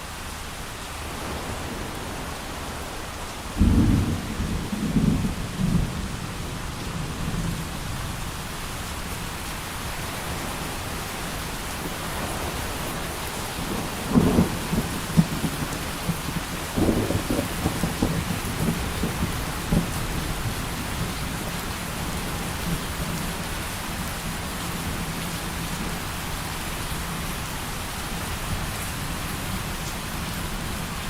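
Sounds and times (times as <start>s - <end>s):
heavy rain: 0.0s - 31.0s
thunder rumbling: 1.0s - 8.4s, 10.2s - 21.6s.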